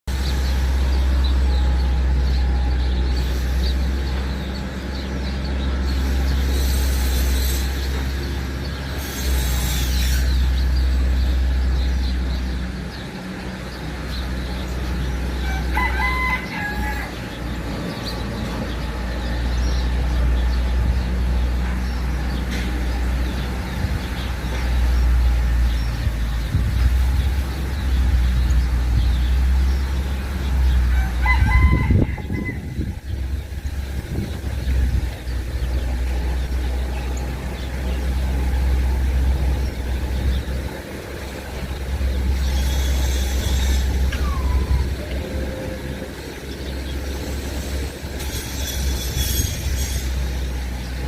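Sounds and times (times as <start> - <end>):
bird calls: 0.1 - 51.0
steady low rumble: 10.3 - 51.0
fowl-like call: 15.4 - 17.2.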